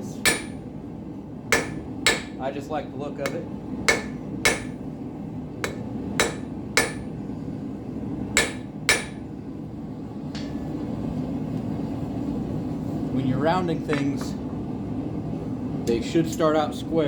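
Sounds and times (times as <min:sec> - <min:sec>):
forge burner rushing: 0:00.0 - 0:13.3
hammer striking hot steel on anvil: 0:00.1 - 0:00.7, 0:01.5 - 0:02.5, 0:03.2 - 0:04.9, 0:05.6 - 0:07.2, 0:08.4 - 0:09.3.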